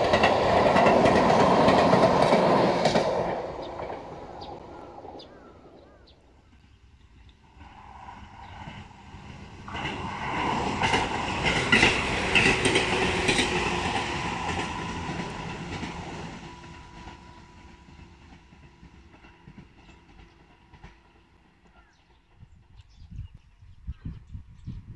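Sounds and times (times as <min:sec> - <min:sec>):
wheels clacking over rail joints: 0:00.0 - 0:22.1
electric train passing: 0:00.0 - 0:22.8.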